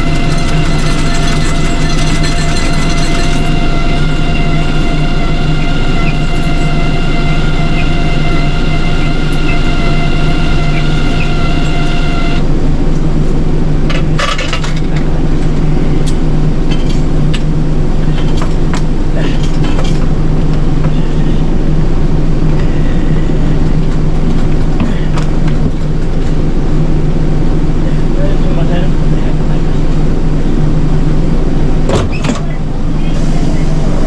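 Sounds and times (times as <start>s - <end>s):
rattles and clicks: 0.0s - 5.0s, 13.9s - 21.0s
bus engine hum: 0.0s - 34.0s
high whine: 0.0s - 34.0s.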